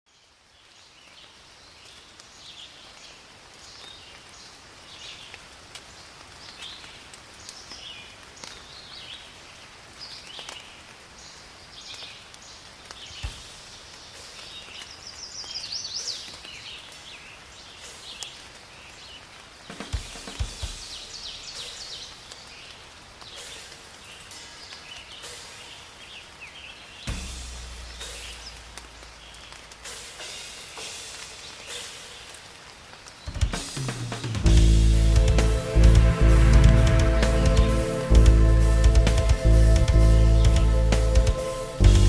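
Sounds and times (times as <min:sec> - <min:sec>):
small birds chirping: 0:00.1 - 0:36.1
faint hiss: 0:00.1 - 0:42.0.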